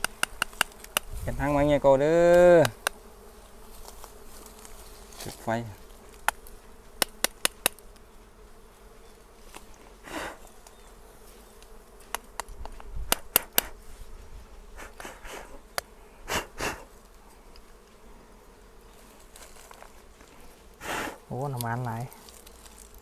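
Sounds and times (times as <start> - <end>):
sharp clicks: 0.0 - 1.1, 2.3 - 3.0, 6.2 - 7.8, 12.1 - 13.8
bees buzzing in a swarm: 0.0 - 23.0.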